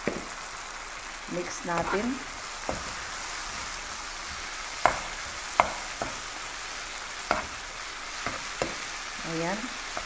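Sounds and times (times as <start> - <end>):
vegetables sizzling in frying pan: 0.0 - 10.0
metal spoon knocking against pan: 4.8 - 6.2.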